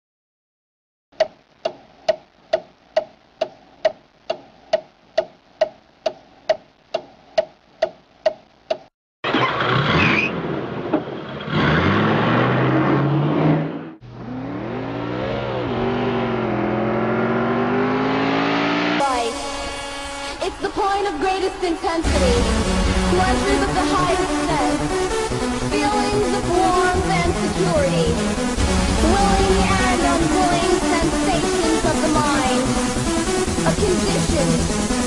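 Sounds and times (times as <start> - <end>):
sharp ticks with short tone: 1.2 - 8.9
racing car engines revving: 9.3 - 20.1.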